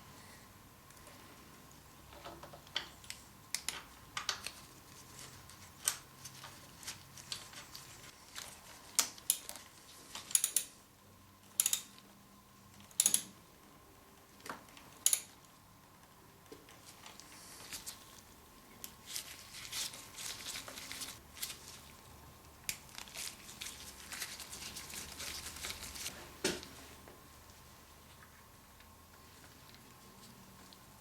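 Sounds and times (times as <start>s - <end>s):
metallic clicks of hand tools: 10.2s - 10.8s, 11.5s - 12.0s, 12.9s - 13.3s, 15.0s - 15.4s.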